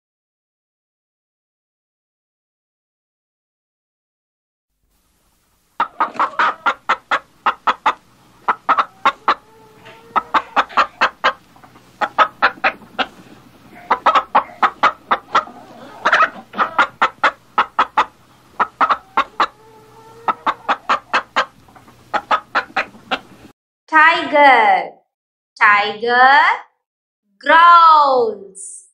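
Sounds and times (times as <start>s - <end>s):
hen clucking: 5.8s - 23.5s.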